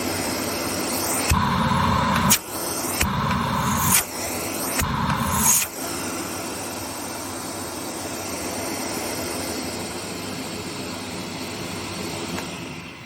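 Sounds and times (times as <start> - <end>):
vacuum cleaner running: 0.0 - 13.0
rush of air: 1.2 - 6.6.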